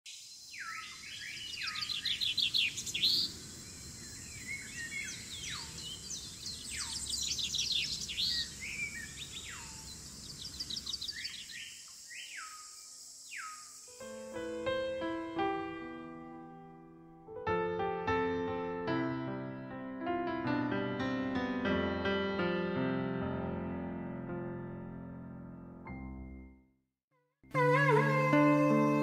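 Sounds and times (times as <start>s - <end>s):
birds singing: 0.1s - 15.5s.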